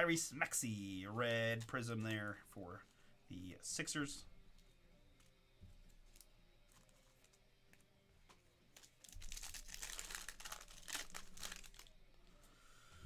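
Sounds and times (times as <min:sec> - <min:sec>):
wrapper crinkling: 0:08.7 - 0:12.2.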